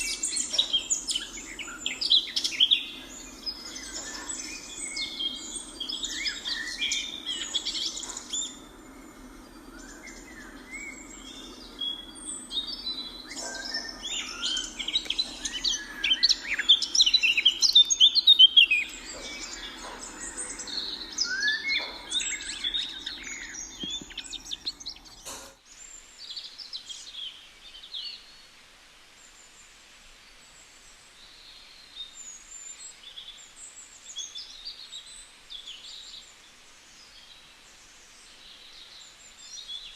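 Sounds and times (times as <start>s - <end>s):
flock of birds chirping: 0.0s - 39.9s.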